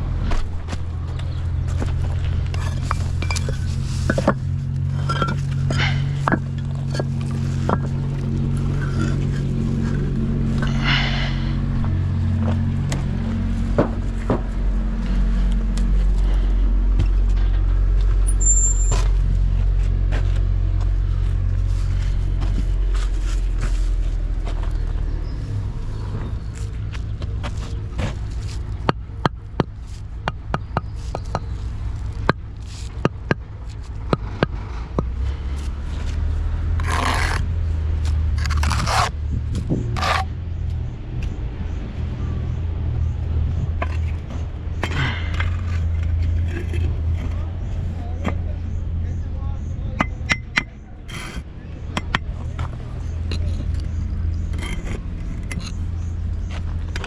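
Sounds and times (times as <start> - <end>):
engine running with low hum: 0.0 - 57.0
sharp knocks and scrapes: 0.2 - 15.2, 26.1 - 35.1, 36.0 - 40.4, 43.8 - 48.8, 50.0 - 57.0.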